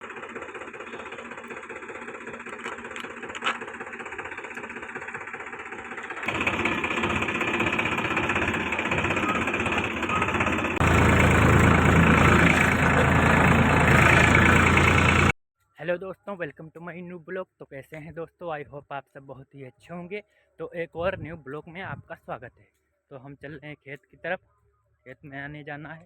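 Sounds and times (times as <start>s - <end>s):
tractor engine chugging: 0.0s - 15.4s.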